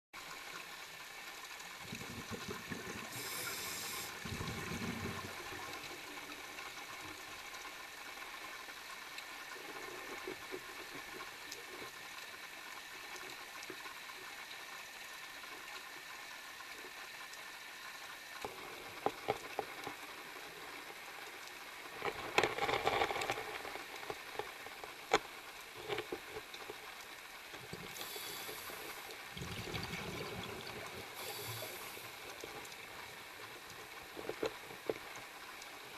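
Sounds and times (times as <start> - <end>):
scuba regulator breathing underwater: 3.0 - 5.2, 27.9 - 29.1, 31.0 - 32.3.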